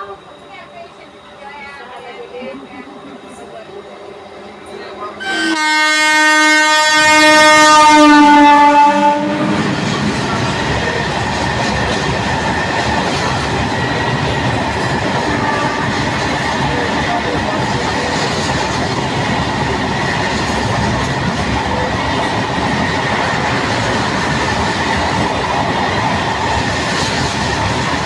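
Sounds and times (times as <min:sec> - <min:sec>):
train horn: 0:05.2 - 0:10.3, 0:15.0 - 0:16.9
train wheels clattering on track: 0:07.0 - 0:28.0.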